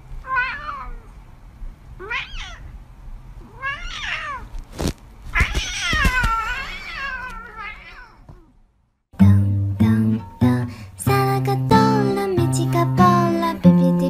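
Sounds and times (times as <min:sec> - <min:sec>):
cat meowing: 0:00.2 - 0:01.1, 0:02.0 - 0:02.7, 0:03.4 - 0:04.5, 0:05.3 - 0:08.5.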